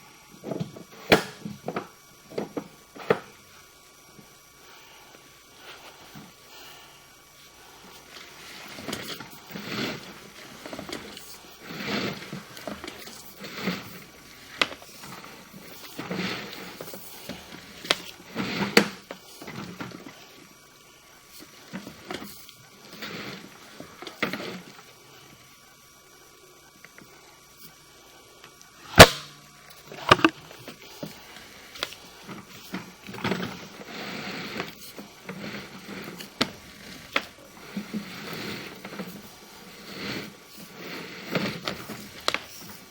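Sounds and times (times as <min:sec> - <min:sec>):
cable scraping and rubbing: 0:07.4 - 0:20.6, 0:21.3 - 0:25.3, 0:29.8 - 0:42.9.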